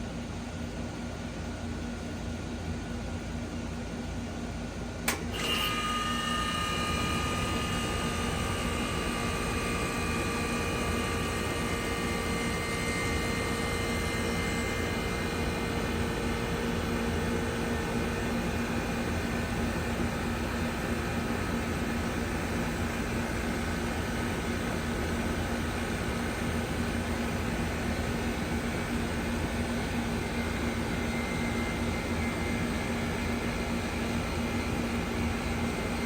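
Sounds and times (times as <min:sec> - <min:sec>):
heat pump humming and whining: 0:00.0 - 0:36.0
contactor click: 0:05.0 - 0:05.6.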